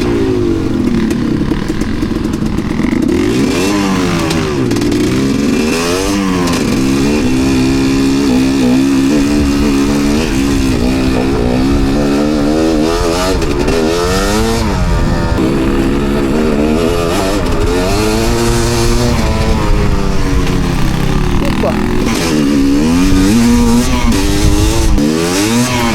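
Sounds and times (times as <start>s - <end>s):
dirt bike engine revving: 0.0s - 25.9s.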